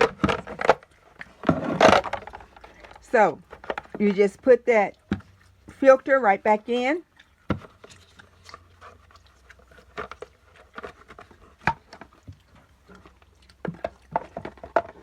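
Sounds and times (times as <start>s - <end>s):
plastic clicks and knocks: 0.0s - 4.1s, 13.6s - 15.0s.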